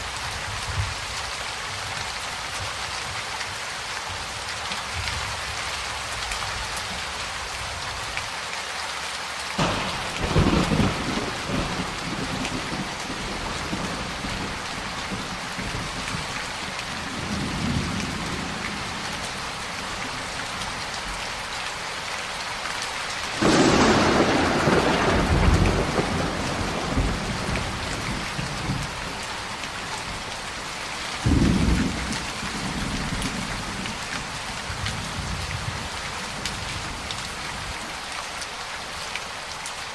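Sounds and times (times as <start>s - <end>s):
heavy rain: 0.0s - 39.9s
sharp thunder crack: 9.6s - 15.2s, 23.4s - 29.0s
thunder rolling: 9.6s - 19.0s, 23.3s - 30.3s.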